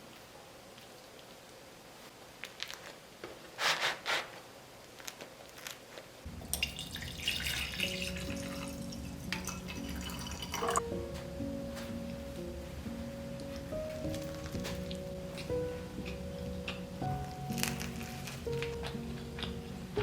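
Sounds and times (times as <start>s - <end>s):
water running from tap: 6.3s - 10.8s
soft background music: 6.6s - 20.0s.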